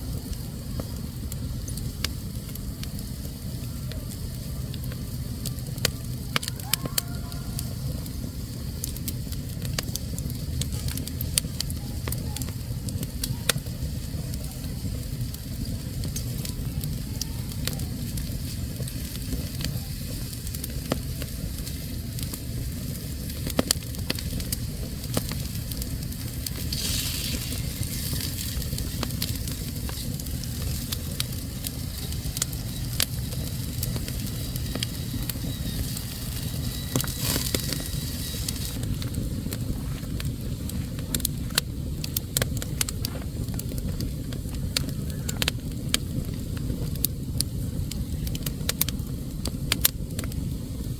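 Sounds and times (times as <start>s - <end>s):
low rumble of fire: 0.0s - 50.9s
wood fire crackling and popping: 0.0s - 50.9s
hiss of escaping steam: 24.6s - 38.9s.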